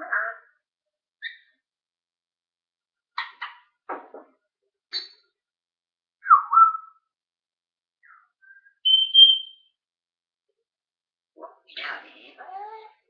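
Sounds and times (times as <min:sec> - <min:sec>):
parrot whistling: 0:06.2 - 0:07.0, 0:08.1 - 0:09.7.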